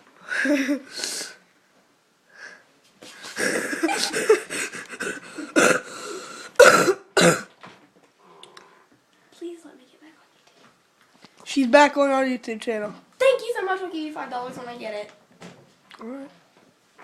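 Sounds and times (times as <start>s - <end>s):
breathy wheezing: 3.2s - 6.6s
person coughing: 3.4s - 6.0s, 6.6s - 7.5s.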